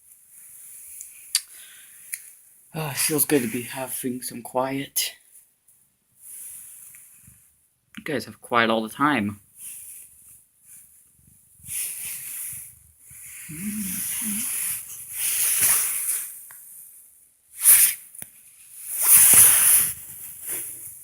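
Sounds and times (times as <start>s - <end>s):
cats hissing: 13.3s - 14.7s
cat growling: 13.5s - 14.6s.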